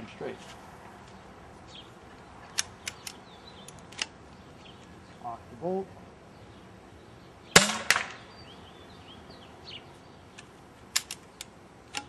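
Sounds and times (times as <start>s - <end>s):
birds chirping faintly: 0.0s - 12.0s
quieter crack: 7.6s - 8.3s.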